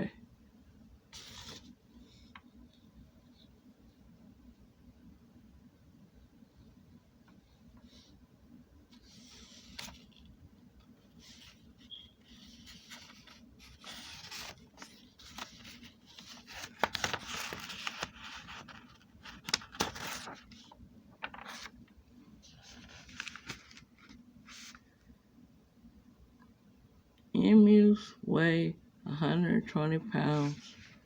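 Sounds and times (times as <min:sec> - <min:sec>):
rustling and scraping handling: 0:08.9 - 0:21.7, 0:22.3 - 0:24.9, 0:30.2 - 0:31.0.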